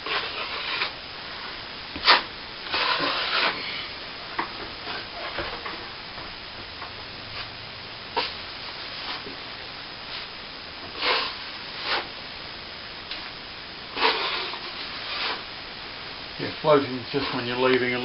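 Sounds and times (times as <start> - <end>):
trowel scraping wet cement: 0.1 - 0.9, 2.0 - 3.7.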